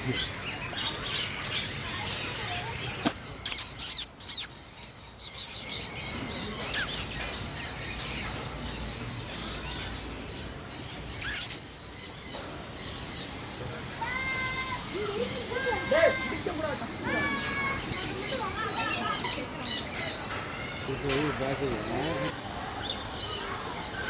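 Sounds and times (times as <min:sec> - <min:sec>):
birds chirping: 0:00.0 - 0:24.0
loud shrill bird calls: 0:03.2 - 0:08.4, 0:11.1 - 0:12.2
bird shrill squeak: 0:03.4 - 0:04.6, 0:06.6 - 0:07.8, 0:11.2 - 0:11.6
faint high chirps: 0:03.4 - 0:04.6, 0:06.6 - 0:07.8, 0:11.2 - 0:11.6.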